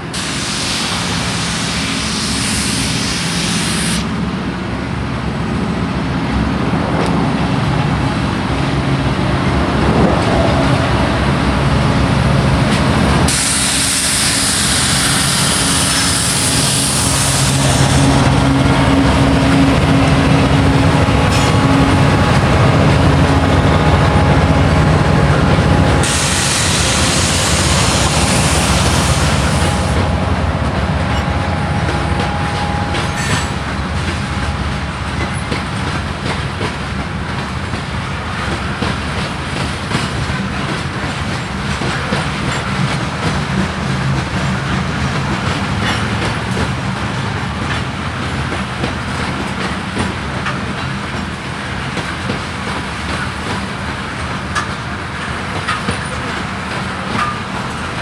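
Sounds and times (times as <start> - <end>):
loud hiss: 0.0 - 4.1, 13.3 - 19.2, 24.6 - 30.4
diesel locomotive engine drone: 0.0 - 58.0
train wheels clacking over rail joints: 12.6 - 58.0.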